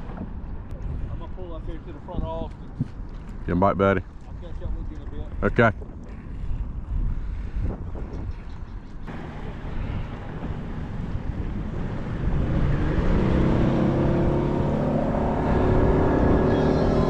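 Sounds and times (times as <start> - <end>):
wind rumble on microphone: 0.0 - 17.0
motorboat engine running: 9.1 - 17.0.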